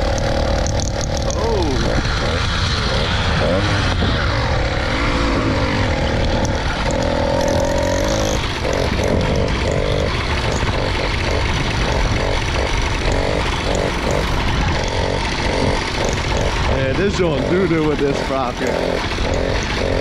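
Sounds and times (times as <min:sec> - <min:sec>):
small motorbike engine stuttering: 0:00.0 - 0:20.0
wind rumble on microphone: 0:01.2 - 0:07.0.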